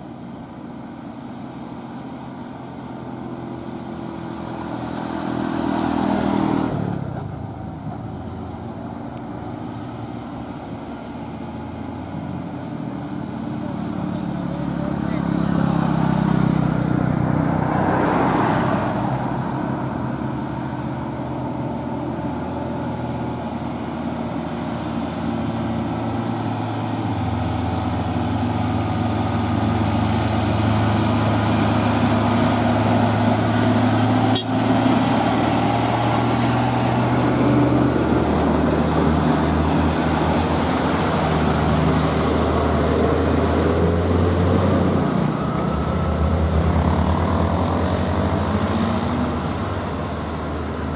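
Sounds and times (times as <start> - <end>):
diesel truck engine drone: 0.0 - 50.9.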